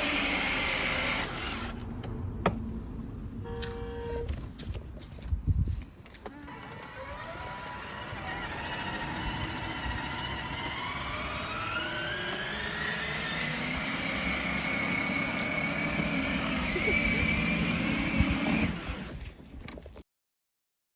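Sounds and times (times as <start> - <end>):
vehicle engine whine rising in pitch: 6.4 - 19.2.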